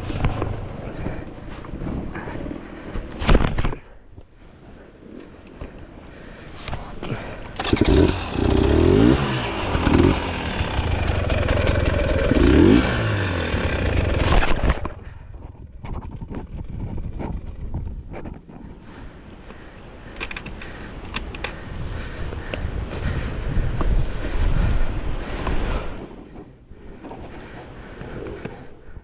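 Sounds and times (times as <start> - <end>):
dirt bike engine revving: 7.6 - 14.9.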